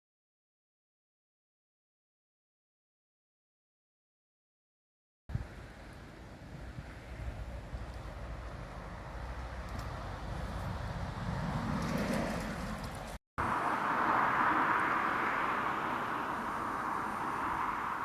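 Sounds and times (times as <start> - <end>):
passing vehicle rumble: 5.3 - 18.0
steady hissing traffic rush: 5.3 - 18.0.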